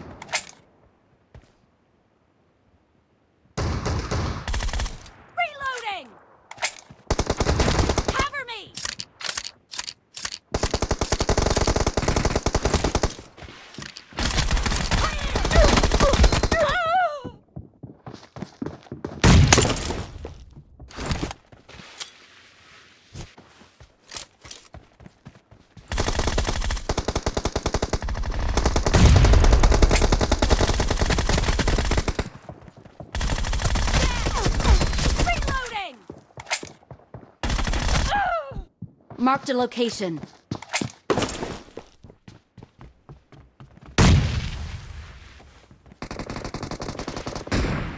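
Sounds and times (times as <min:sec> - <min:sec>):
video game single gunshots: 0:19.2 - 0:20.1
video game automatic gunfire: 0:25.9 - 0:32.4, 0:33.2 - 0:35.6.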